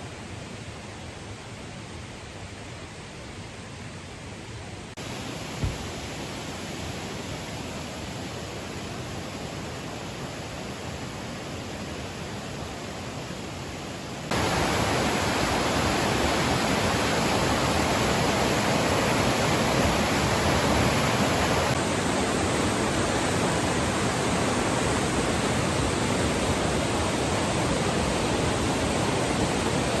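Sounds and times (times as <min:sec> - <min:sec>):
rushing water: 0:05.0 - 0:30.0.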